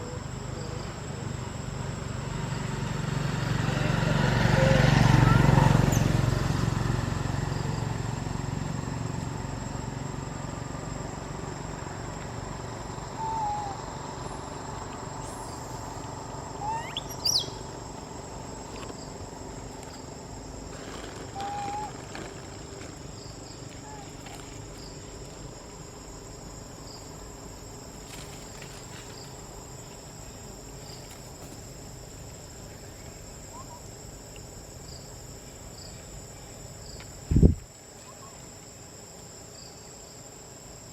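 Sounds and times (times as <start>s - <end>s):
insects droning: 0.0s - 40.9s
low engine sound: 0.3s - 29.6s
short chirping calls: 16.6s - 17.7s.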